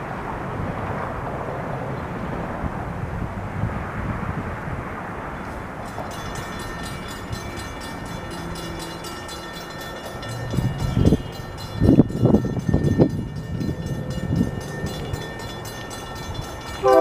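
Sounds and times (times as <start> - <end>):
electric train running: 5.8 - 17.0
faint steady tones: 5.8 - 17.0.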